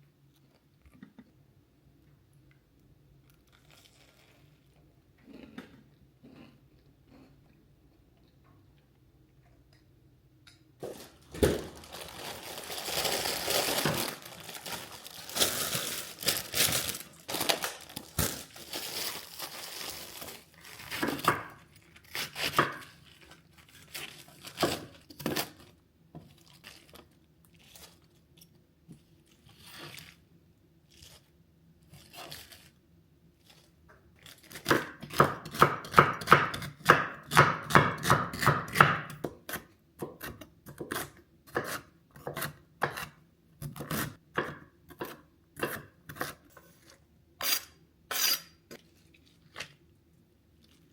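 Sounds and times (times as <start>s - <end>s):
packaging crinkling and tearing: 10.8s - 28.2s
knife chopping on cutting board: 34.7s - 46.4s.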